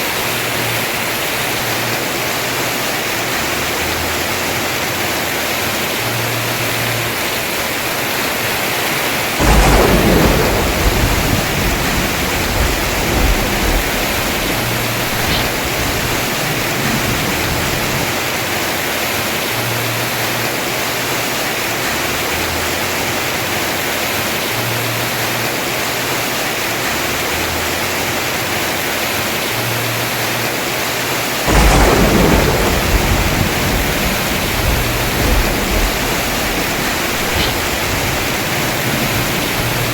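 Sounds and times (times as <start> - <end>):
heavy rain on a roof: 0.0 - 39.9
thunder rumbling: 7.7 - 19.1, 31.4 - 39.9.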